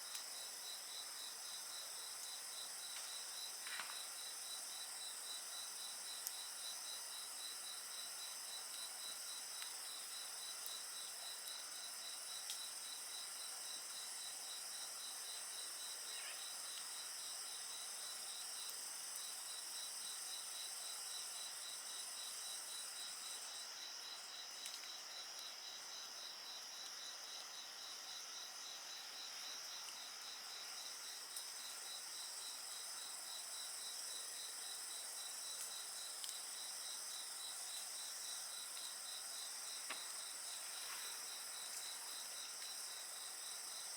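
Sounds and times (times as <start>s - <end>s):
faint bonfire pops: 2.9s - 4.1s, 39.8s - 40.2s.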